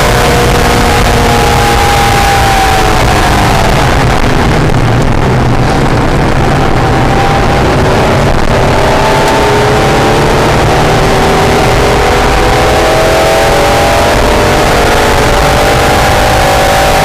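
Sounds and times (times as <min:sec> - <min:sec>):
car engine accelerating: 0:00.0 - 0:17.0
wind and road noise: 0:00.0 - 0:17.0.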